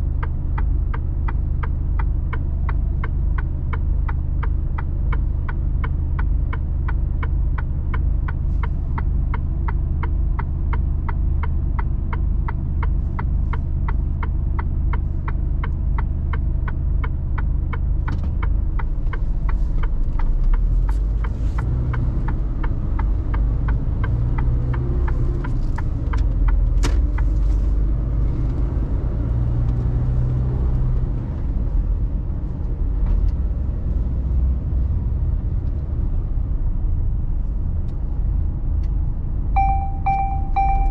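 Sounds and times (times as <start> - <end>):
truck diesel engine: 0.0 - 40.9
turn-signal indicator ticking: 0.1 - 27.5, 38.8 - 40.9.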